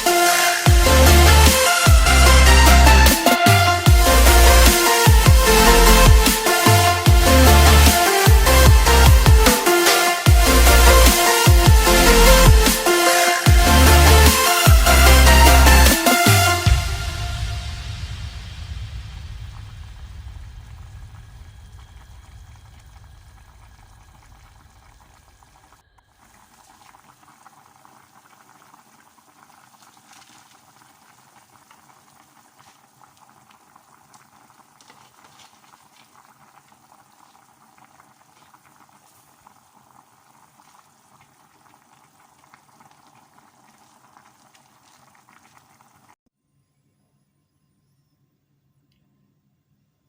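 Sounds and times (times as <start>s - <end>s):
soup boiling with small pops: 24.4s - 46.2s.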